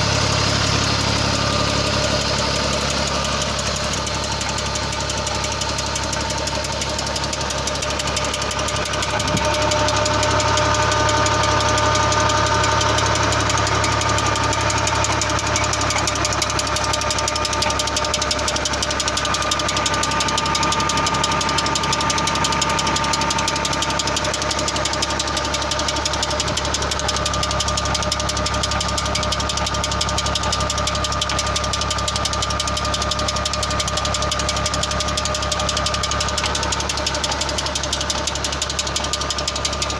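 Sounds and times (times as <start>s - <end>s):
steady high whine: 0.0s - 15.5s
diesel tractor engine running: 0.0s - 39.9s
knocking clatter: 1.6s - 39.9s.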